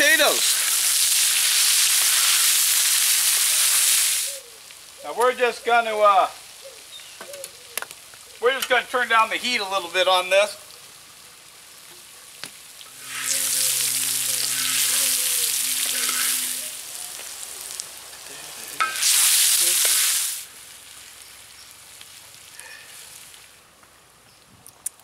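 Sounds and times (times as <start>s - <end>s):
vegetables sizzling in a wok: 0.0s - 5.2s, 9.4s - 23.7s.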